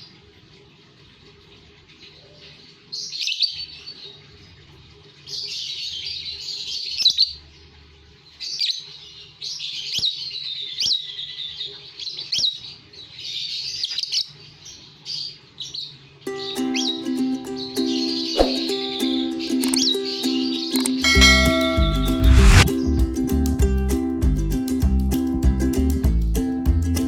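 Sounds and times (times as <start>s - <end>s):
sharp quick bird chirps: 18.2s - 18.8s.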